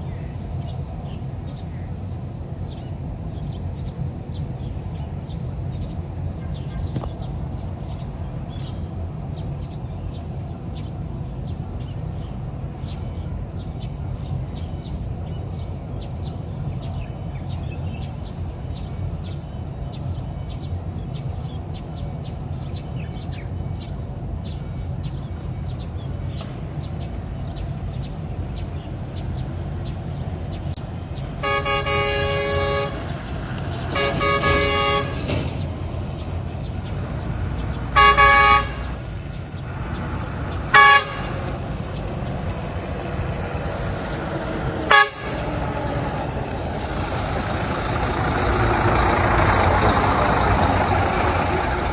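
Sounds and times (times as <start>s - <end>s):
vehicle engine rumble: 0.0s - 51.9s
vehicle horn blasts: 31.4s - 33.1s, 33.9s - 35.4s, 38.0s - 39.0s, 40.7s - 41.6s, 44.8s - 45.6s.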